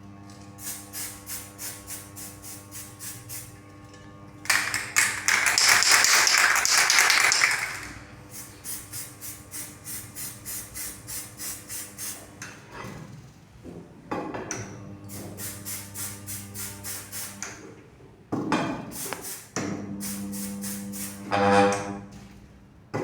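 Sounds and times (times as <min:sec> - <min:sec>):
spray hiss: 0:00.6 - 0:03.5, 0:06.6 - 0:12.2, 0:15.1 - 0:17.5, 0:18.9 - 0:21.3.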